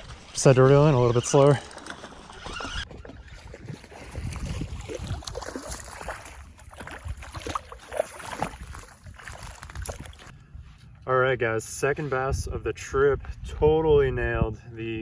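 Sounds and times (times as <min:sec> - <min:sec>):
water splashing and sloshing: 0:00.0 - 0:10.3
wind rumbling on microphone: 0:00.0 - 0:11.0, 0:11.9 - 0:15.0.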